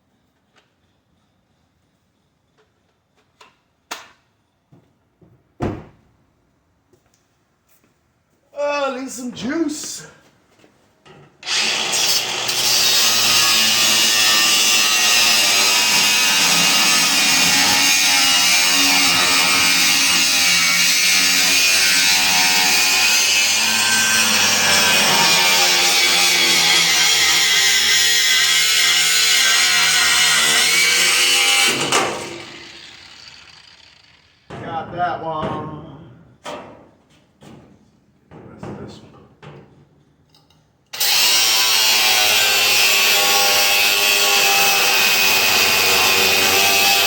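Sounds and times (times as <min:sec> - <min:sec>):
reciprocating saw cutting metal: 0:11.4 - 0:34.5, 0:41.0 - 0:47.0.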